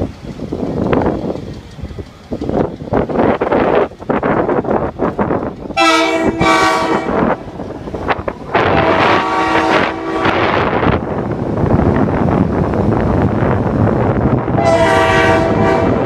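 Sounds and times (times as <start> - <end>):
train rumble: 0.0 - 16.0
train horn blasts: 5.8 - 7.4, 8.5 - 10.8, 14.5 - 16.0.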